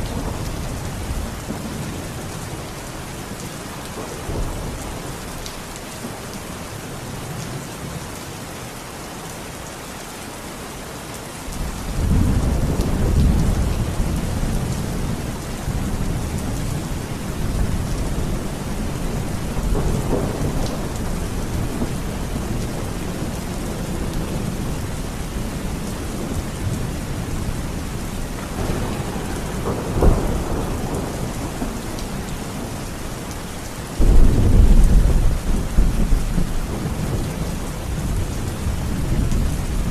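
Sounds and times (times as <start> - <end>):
steady rain: 0.0 - 39.9
rolling thunder: 11.6 - 32.8, 34.0 - 39.9.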